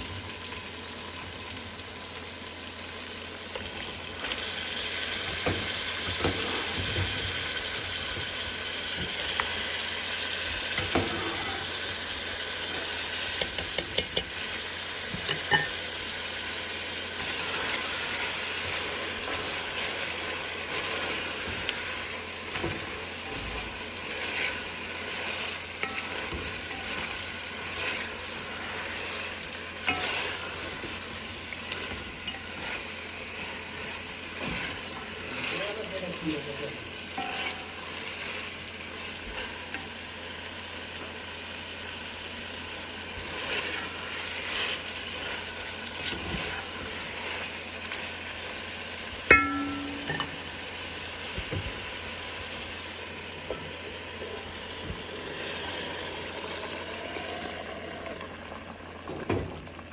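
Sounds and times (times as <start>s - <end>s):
food sizzling in hot oil: 0.0s - 59.9s
utensil clinking against pot: 15.2s - 15.8s, 49.3s - 50.4s.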